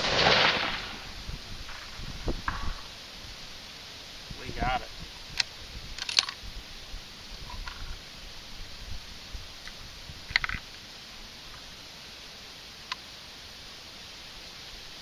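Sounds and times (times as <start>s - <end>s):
wind rumbling on microphone: 0.0s - 10.7s.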